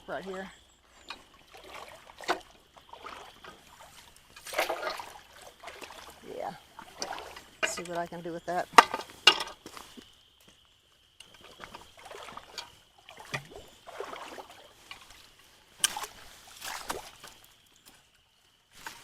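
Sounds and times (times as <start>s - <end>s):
creek water splashing and sloshing: 0.0s - 19.0s.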